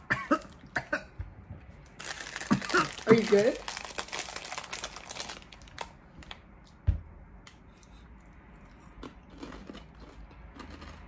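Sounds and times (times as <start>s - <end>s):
corn chips crunching: 1.9s - 6.0s, 8.8s - 11.0s.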